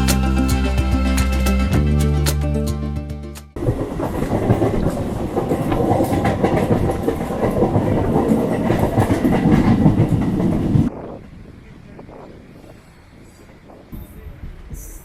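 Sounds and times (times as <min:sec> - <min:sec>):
train wheels clattering over rails: 0:03.6 - 0:11.0.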